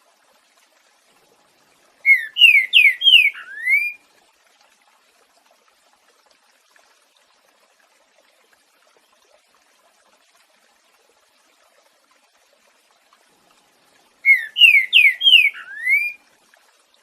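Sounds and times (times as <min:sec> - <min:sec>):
bird singing whistled notes: 0:02.0 - 0:04.0, 0:14.2 - 0:16.2.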